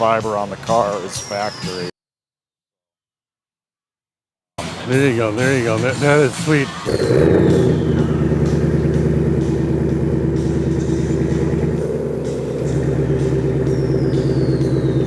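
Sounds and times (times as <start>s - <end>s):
car engine starting and idling: 5.7s - 15.0s.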